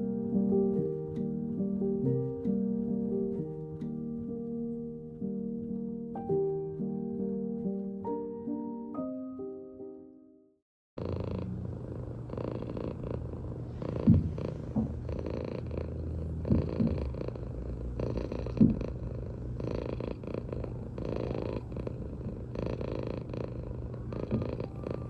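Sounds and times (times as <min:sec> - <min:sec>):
cat purring: 0:11.0 - 0:25.0.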